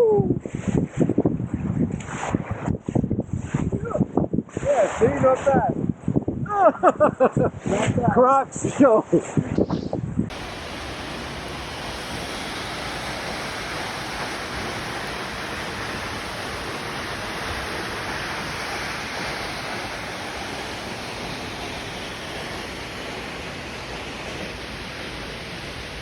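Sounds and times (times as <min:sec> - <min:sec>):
waterfall rushing: 0:10.3 - 0:26.0.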